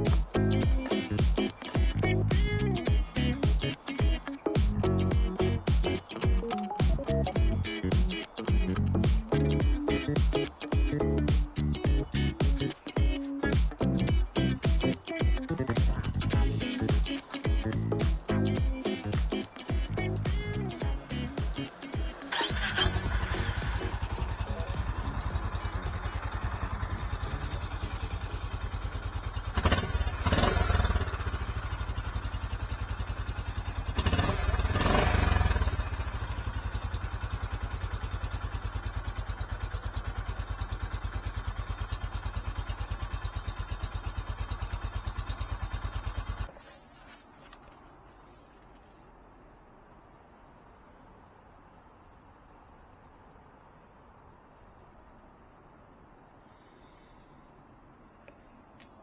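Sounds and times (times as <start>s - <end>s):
engine throttle blips: 0.0s - 46.5s
motorcycle engine idling: 0.0s - 46.6s.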